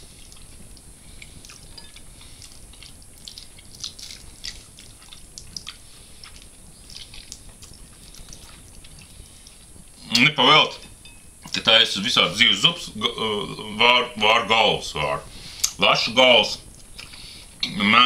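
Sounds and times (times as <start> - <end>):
person chewing food: 0.0 - 10.0, 16.6 - 17.6
wet mouth clicks and smacks: 2.3 - 9.6, 15.6 - 15.8.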